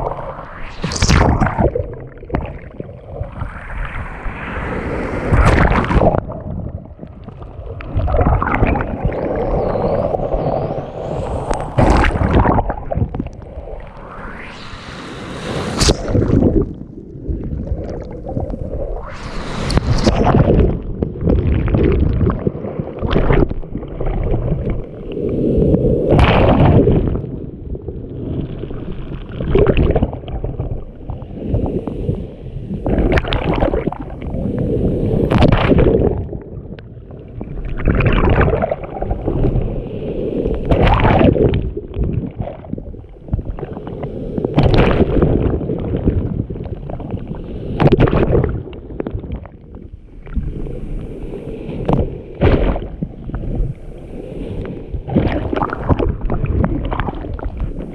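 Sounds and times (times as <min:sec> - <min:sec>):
waves splashing: 0:00.0 - 0:06.4, 0:07.9 - 0:16.8, 0:17.7 - 0:20.9, 0:31.0 - 0:36.2, 0:49.9 - 0:57.9.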